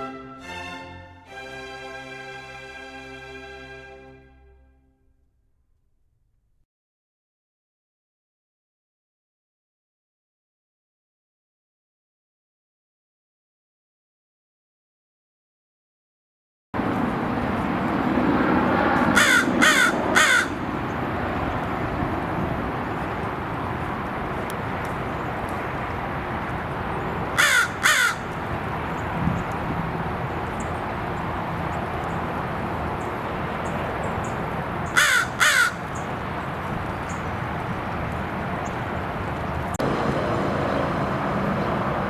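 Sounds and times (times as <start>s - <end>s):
crow cawing: 19.1s - 20.6s, 27.4s - 28.3s, 34.9s - 36.0s.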